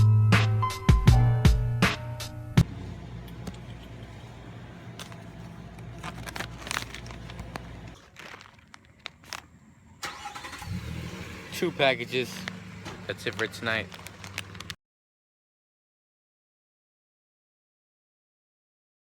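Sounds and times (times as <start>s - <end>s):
car engine low rumble: 2.5s - 14.8s
clicks and handling noises: 2.6s - 10.0s, 12.3s - 14.8s.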